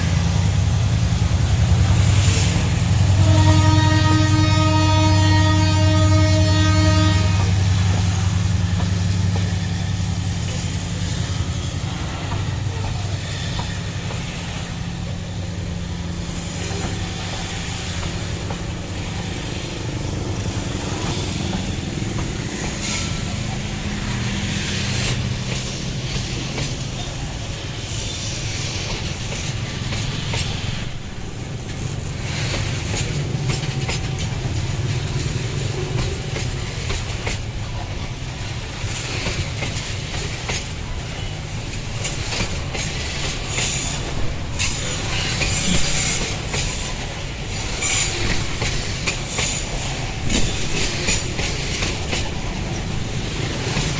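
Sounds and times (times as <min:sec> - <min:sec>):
train wheels on rails: 0:00.0 - 0:53.9
locomotive horn: 0:03.1 - 0:07.6.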